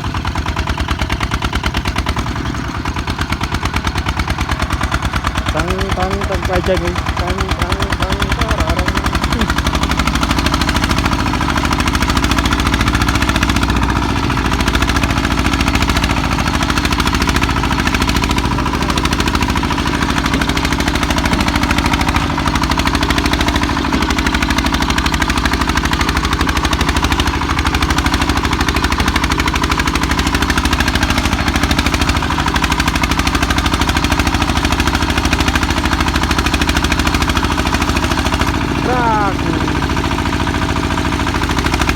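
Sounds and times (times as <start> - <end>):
diesel engine chugging: 0.0 - 41.9.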